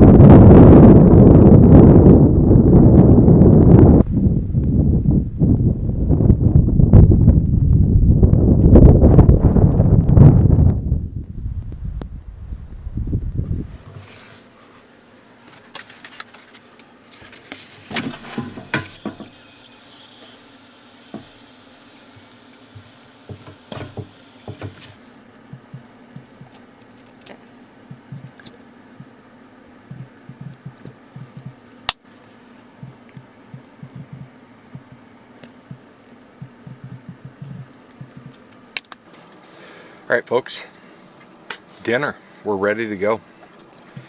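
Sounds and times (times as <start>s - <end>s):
hiss like running water: 17.8s - 25.2s.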